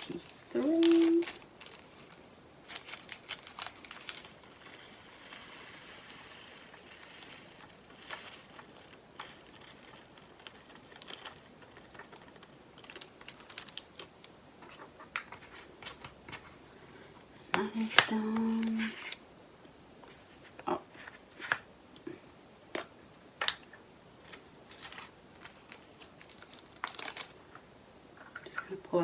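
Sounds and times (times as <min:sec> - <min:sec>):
resin beads rattling into plastic pot: 0:00.0 - 0:14.1, 0:24.7 - 0:27.4.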